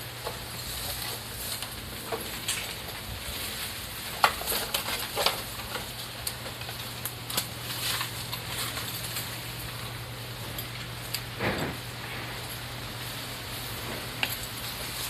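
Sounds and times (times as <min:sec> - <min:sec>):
bamboo crackling and rustling: 0:00.0 - 0:15.0
steady low hum: 0:00.0 - 0:15.0.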